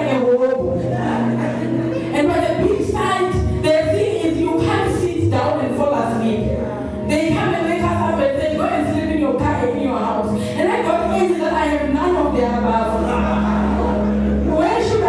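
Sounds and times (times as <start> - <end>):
woman singing: 0.0 - 15.0
held low notes: 10.8 - 15.0.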